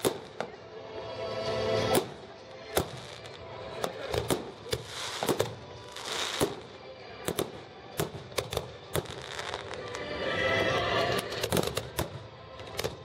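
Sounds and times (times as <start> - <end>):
fireworks crackling hiss: 0.0 - 0.5, 1.8 - 10.2.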